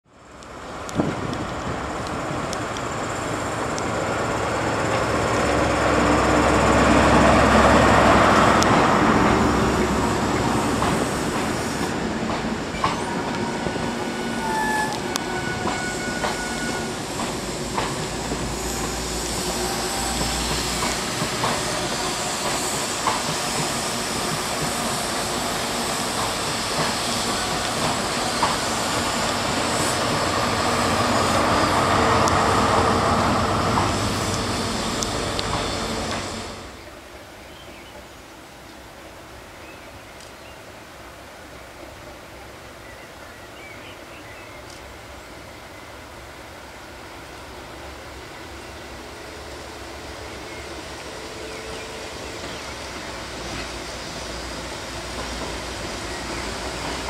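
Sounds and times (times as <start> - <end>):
diesel train engine: 0.1 - 37.4, 40.8 - 57.0
wheel squeals: 14.3 - 17.3.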